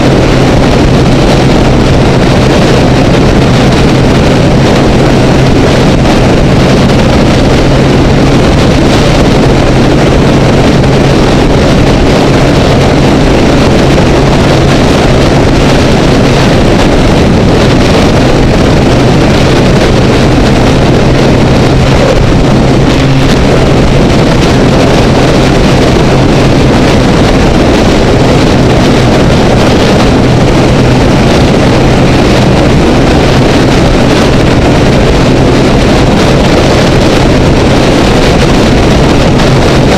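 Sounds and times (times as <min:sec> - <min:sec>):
motorcycle engine droning: 0:00.0 - 0:39.9
wind rush on microphone: 0:00.0 - 0:39.9.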